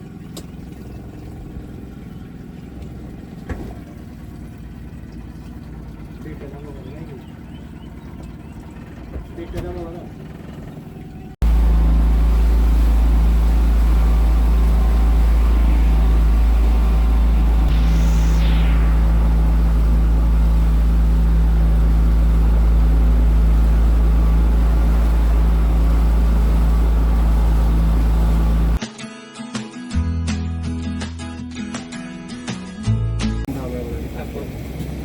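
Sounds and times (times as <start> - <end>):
motorboat engine running: 0.0 - 28.8, 33.5 - 35.0.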